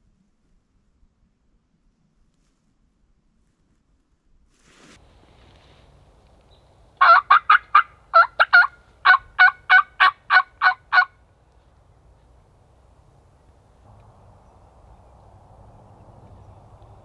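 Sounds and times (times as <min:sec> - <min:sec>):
turkey yelping: 0:07.0 - 0:11.2.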